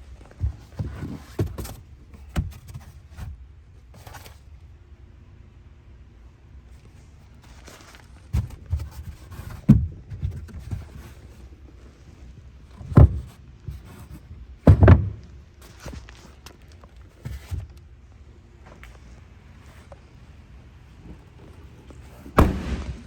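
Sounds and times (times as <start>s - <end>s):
dull thuds and knocks: 8.2s - 11.5s, 12.7s - 16.1s, 22.3s - 23.0s.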